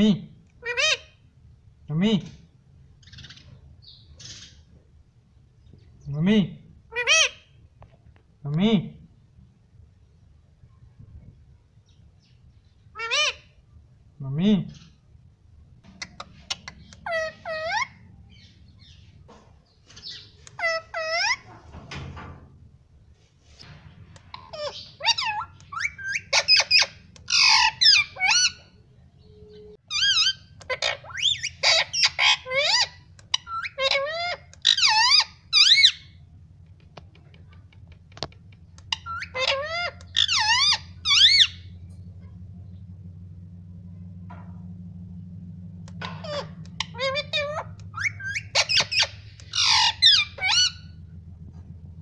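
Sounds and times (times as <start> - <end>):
parrot squawking and chirping: 0.6 - 1.2, 3.0 - 4.6, 6.9 - 7.6, 12.9 - 13.6, 15.9 - 19.2, 19.8 - 21.6, 24.1 - 36.2, 38.3 - 42.4, 45.8 - 51.1.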